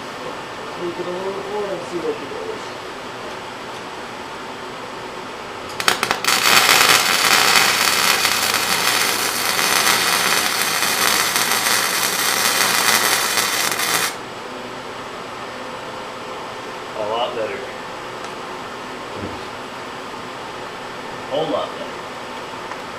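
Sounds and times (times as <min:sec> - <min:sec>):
fan humming: 0:00.0 - 0:22.9
welding arc crackling: 0:05.7 - 0:14.2.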